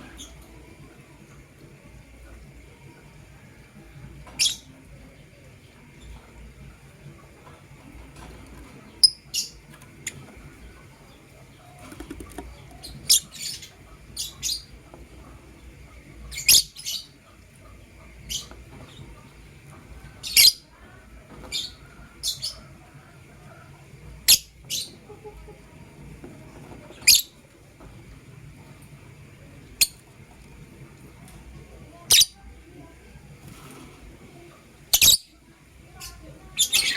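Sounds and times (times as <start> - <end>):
birds chirping high-pitched: 0.0 - 1.6, 4.2 - 7.6, 8.2 - 22.9, 24.2 - 25.8, 26.6 - 27.6, 29.4 - 30.2, 31.9 - 32.5, 34.4 - 36.9.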